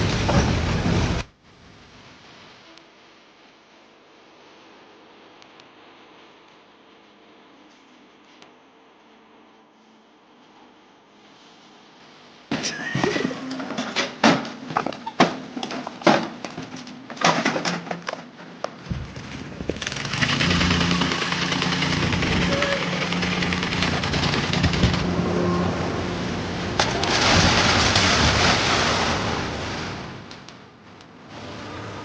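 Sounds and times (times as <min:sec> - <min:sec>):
motor running with rushing noise: 0:18.8 - 0:30.3.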